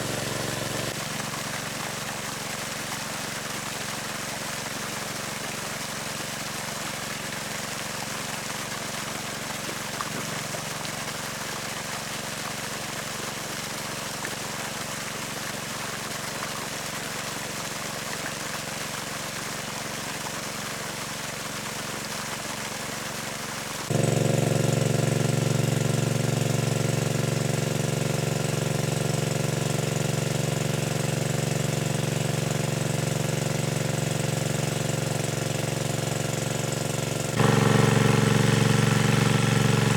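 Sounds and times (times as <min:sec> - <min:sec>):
small engine running: 0:00.0 - 0:02.4, 0:23.9 - 0:39.9.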